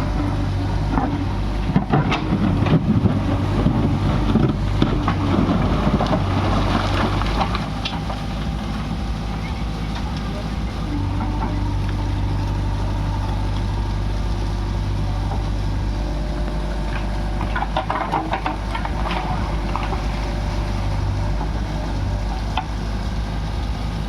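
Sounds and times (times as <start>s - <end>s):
backhoe diesel engine running: 0.0s - 24.0s
scraping and clattering: 16.4s - 22.8s.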